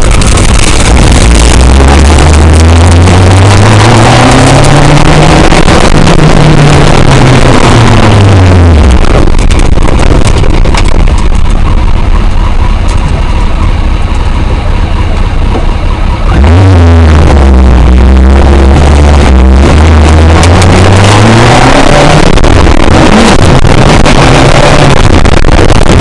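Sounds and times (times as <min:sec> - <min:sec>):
motorcycle engine revving: 0:00.0 - 0:26.0
wind buffeting microphone: 0:05.1 - 0:12.4.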